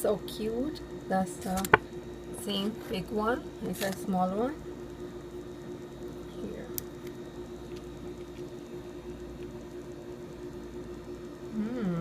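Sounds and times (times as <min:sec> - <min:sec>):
low hum of several tones: 0:00.0 - 0:12.0.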